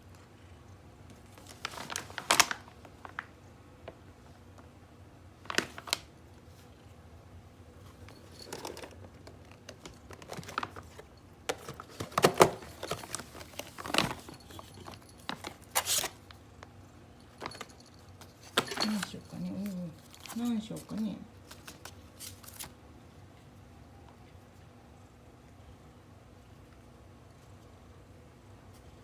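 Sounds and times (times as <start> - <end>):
food packaging crinkling: 1.3 - 3.3, 5.4 - 6.1, 7.9 - 16.4, 17.3 - 22.8.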